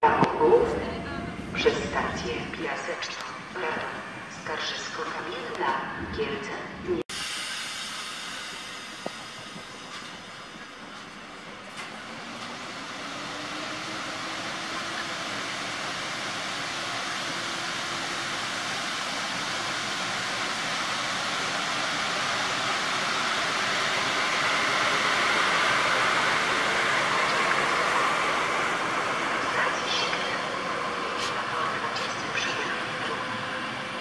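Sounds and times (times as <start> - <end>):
train rumble and rail noise: 0.0 - 34.0
locomotive whine rising in pitch: 7.1 - 34.0.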